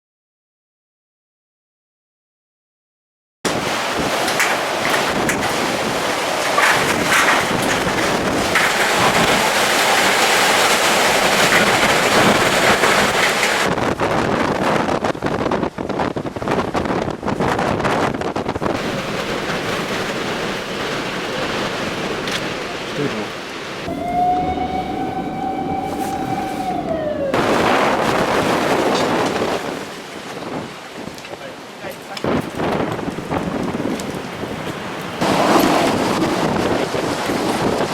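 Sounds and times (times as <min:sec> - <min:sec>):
wind buffeting microphone: 0:03.5 - 0:22.7, 0:23.8 - 0:31.4, 0:32.2 - 0:37.9
strong wind rushing: 0:23.8 - 0:31.1
high whistling tone sliding down: 0:23.9 - 0:28.5.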